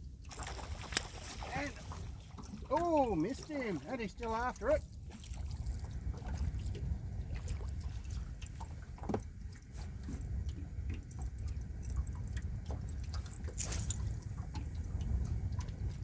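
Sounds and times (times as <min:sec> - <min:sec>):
short ticks and splashes: 0:00.0 - 0:16.0
water lapping and dripping: 0:00.0 - 0:16.0
wind rumble on microphone: 0:04.7 - 0:16.0.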